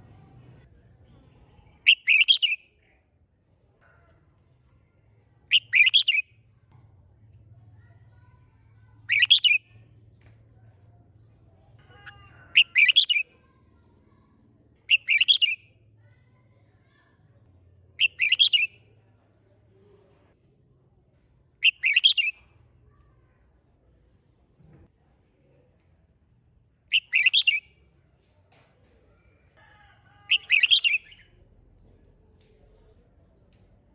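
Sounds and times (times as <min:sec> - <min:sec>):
bird chirping song: 0:00.0 - 0:03.0, 0:04.4 - 0:20.1, 0:21.1 - 0:23.4, 0:26.9 - 0:33.9.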